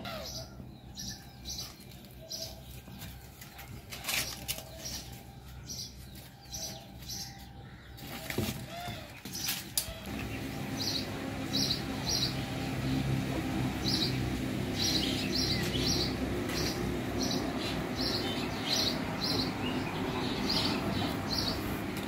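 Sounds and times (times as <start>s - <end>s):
low steady rumble: 10.0s - 22.0s.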